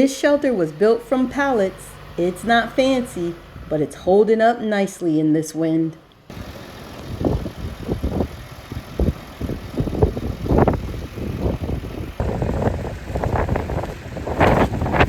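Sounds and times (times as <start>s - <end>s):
gusty wind buffeting microphone: 2.8s - 4.2s, 6.3s - 15.0s.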